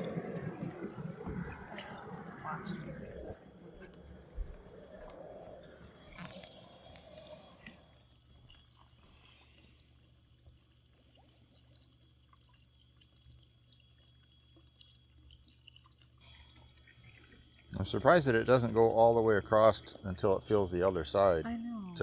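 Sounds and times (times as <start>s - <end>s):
faint low hum: 0.0s - 13.8s.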